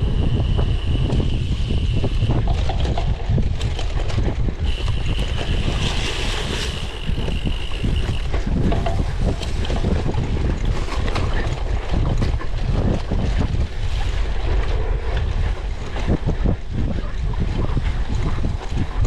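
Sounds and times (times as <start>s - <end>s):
wind buffeting microphone: 0.0s - 19.0s
bike rattles and knocks: 0.2s - 14.0s.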